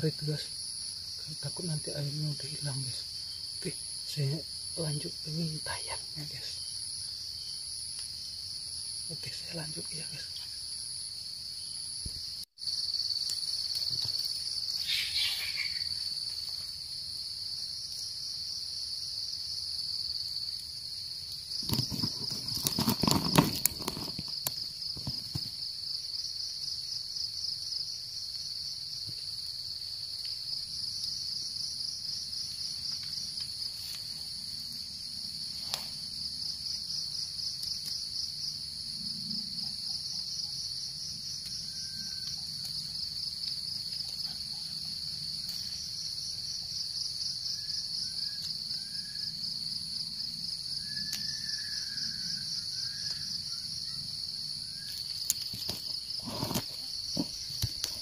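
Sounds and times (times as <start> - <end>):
high constant insect whine: 0.0 - 58.0
insect chorus trilling: 0.0 - 58.0
faint bird chirps: 14.8 - 16.0.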